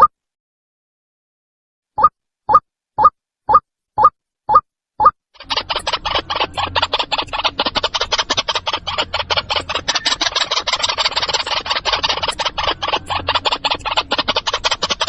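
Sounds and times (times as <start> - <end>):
waterhen harsh calls: 5.4 - 15.0.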